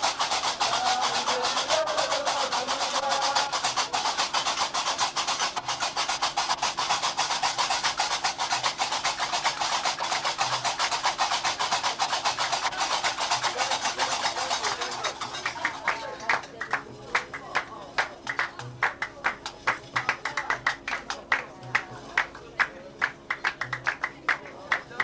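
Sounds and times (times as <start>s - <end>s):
iron castanets clattering: 0.0s - 17.3s.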